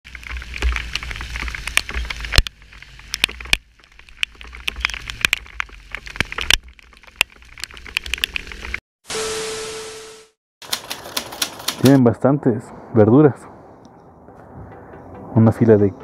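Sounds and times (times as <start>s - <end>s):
rain drops tapping camera housing: 0.1s - 8.8s.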